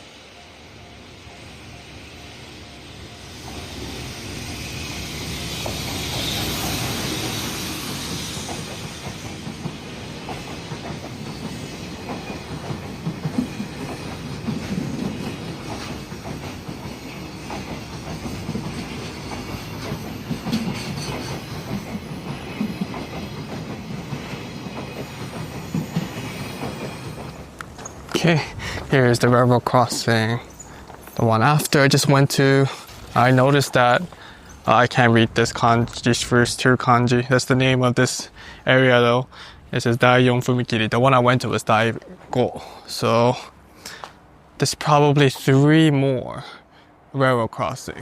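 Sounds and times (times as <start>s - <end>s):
train rumbling on tracks: 0.0s - 45.9s
hiss: 1.4s - 12.0s
wheels clicking on rails: 3.4s - 36.6s.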